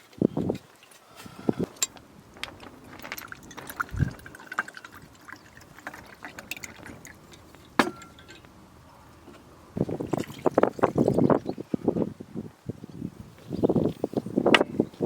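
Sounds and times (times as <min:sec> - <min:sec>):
liquid pouring into container: 0:02.6 - 0:08.4, 0:09.9 - 0:11.6.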